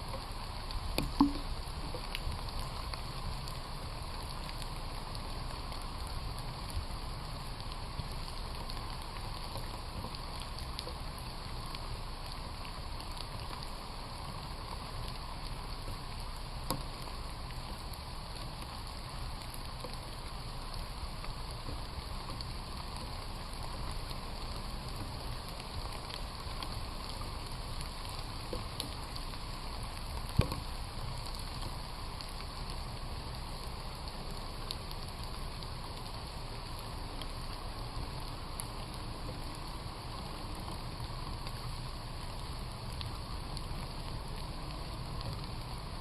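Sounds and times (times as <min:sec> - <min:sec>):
raindrop taps: 0:00.0 - 0:03.0
rain falling: 0:00.0 - 0:46.0.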